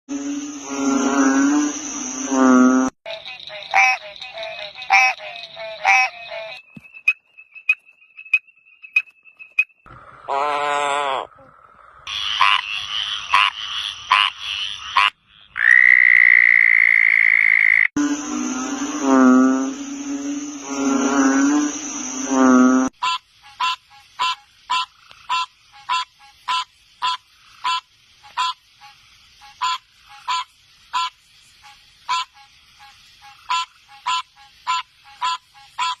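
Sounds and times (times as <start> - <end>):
frog croaks: 0.1 - 6.6, 9.9 - 31.2, 32.1 - 36.0
frog trill: 0.1 - 6.6, 10.3 - 11.5, 12.1 - 28.6, 33.3 - 36.0
rasping frog chorus: 0.2 - 6.6, 10.0 - 28.6
soft low frog notes: 17.5 - 28.6.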